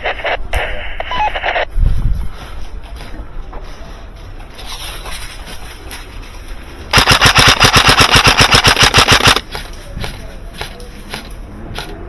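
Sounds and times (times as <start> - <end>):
airsoft gun firing full auto: 6.9 - 9.6.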